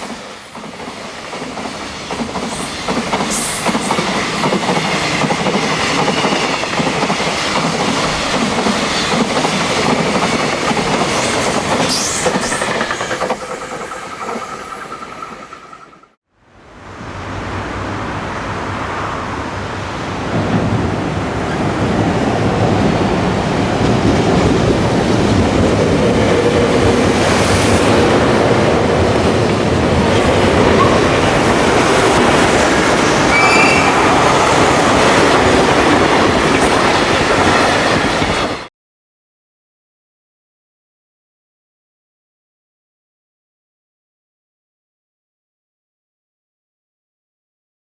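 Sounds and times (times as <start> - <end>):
high wheel squeals: 0.0 - 4.4, 11.8 - 16.1, 33.2 - 34.6
freight train wheels clattering: 0.7 - 16.1.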